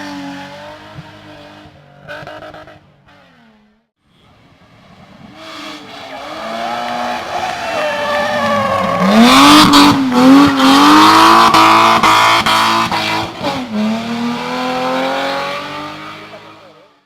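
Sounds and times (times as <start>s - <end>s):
race car engine revving: 5.2s - 16.9s.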